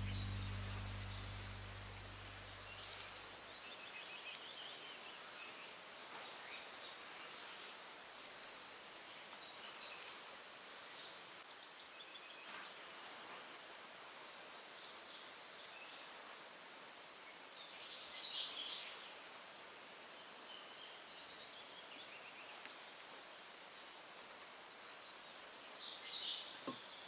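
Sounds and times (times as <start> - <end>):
songbirds singing: 0.0 - 5.2
steady outdoor hiss: 0.0 - 27.0.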